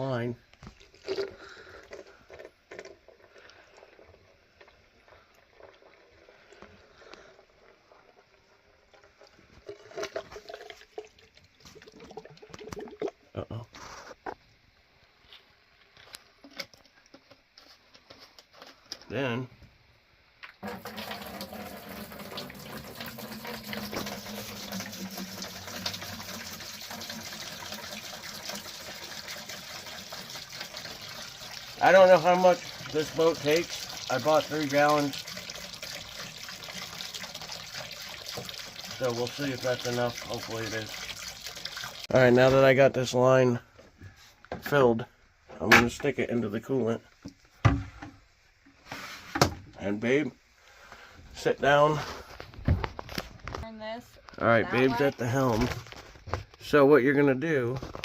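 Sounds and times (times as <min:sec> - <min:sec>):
small ticks and bubbling: 0:00.5 - 0:13.3
liquid gurgling through a funnel: 0:00.6 - 0:14.0, 0:20.6 - 0:42.1.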